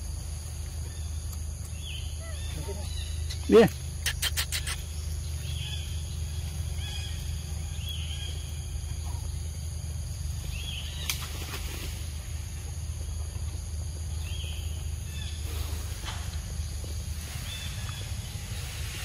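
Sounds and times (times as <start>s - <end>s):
steady low hum: 0.0s - 19.0s
bird chirps: 0.8s - 11.2s.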